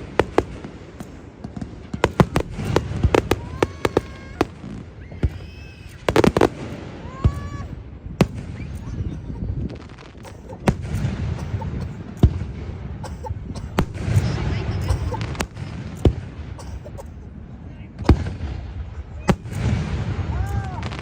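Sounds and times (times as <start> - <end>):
fireworks shells bursting: 0.0 - 7.4, 9.9 - 12.4.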